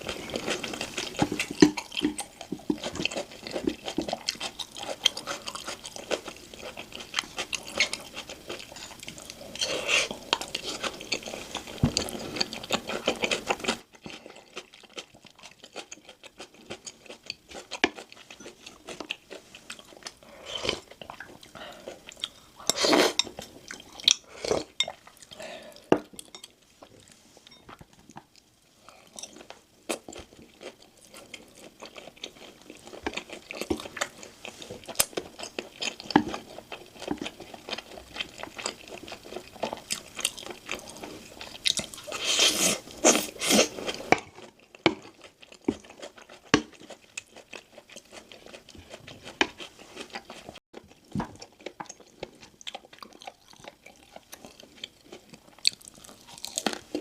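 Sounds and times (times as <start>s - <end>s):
chewing with crisp crunches: 0.0s - 57.0s.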